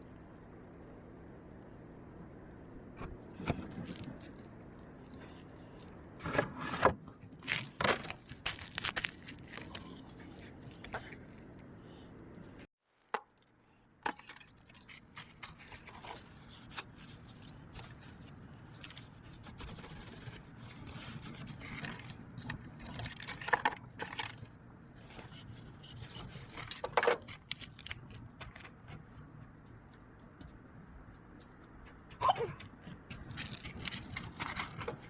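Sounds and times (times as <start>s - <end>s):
low background hum: 0.0s - 12.7s.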